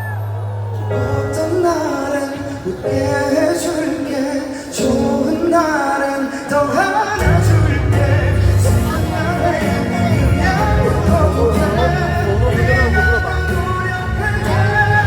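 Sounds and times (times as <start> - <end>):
live pop music: 0.0 - 15.0
person singing: 0.1 - 15.0
heavy bass line: 7.2 - 15.0.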